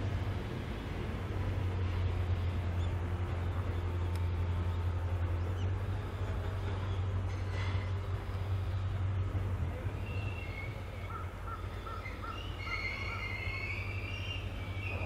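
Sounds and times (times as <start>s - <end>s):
locomotive rolling past: 0.0s - 15.0s
wheels squealing: 9.8s - 15.0s.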